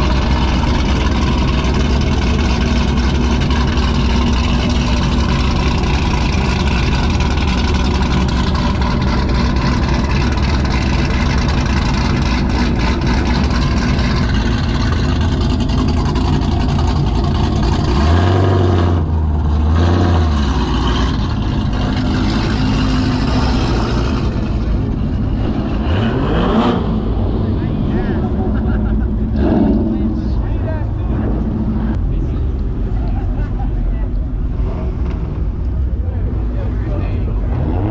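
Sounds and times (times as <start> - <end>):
car engine running and revving: 0.0 - 37.9.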